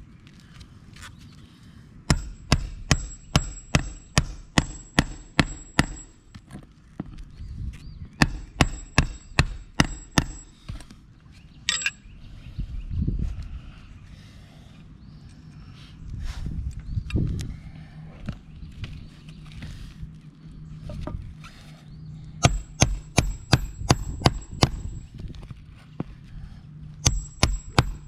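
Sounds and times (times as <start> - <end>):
hammer striking nails: 2.1 - 6.2, 8.2 - 10.6, 22.4 - 25.0, 27.0 - 28.0.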